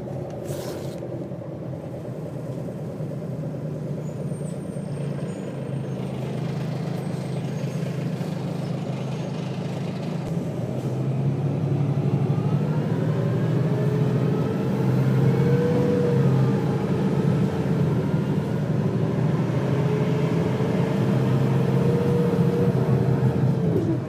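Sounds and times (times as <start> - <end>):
bus diesel engine pulling hard: 0.0 - 24.0.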